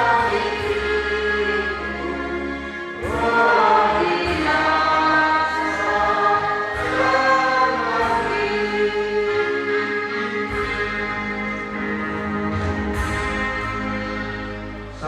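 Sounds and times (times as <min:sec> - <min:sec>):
choir singing: 0:00.0 - 0:15.0
instrumental accompaniment: 0:00.0 - 0:15.0.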